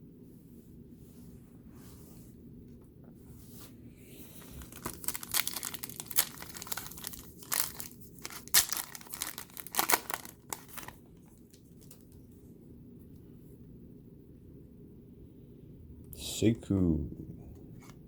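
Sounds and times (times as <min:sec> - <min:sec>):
card pack wrapper crinkling: 0:04.4 - 0:12.2.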